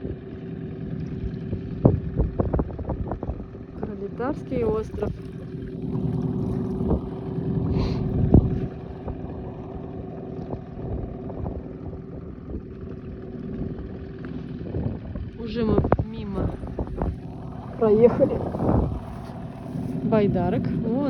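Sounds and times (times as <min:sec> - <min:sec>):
outboard motor humming: 0:00.0 - 0:21.0
water noise: 0:00.0 - 0:21.0
wind noise: 0:01.3 - 0:09.5, 0:14.6 - 0:21.0.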